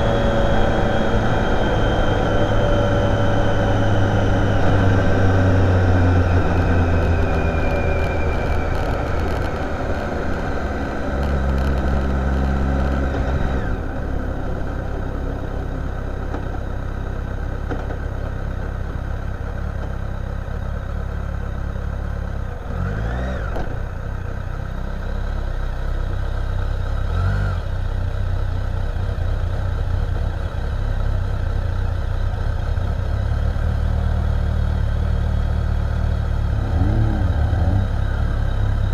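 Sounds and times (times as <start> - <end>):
brief rising and falling whine: 0.0 - 16.7
motorcycle engine droning: 0.0 - 38.9.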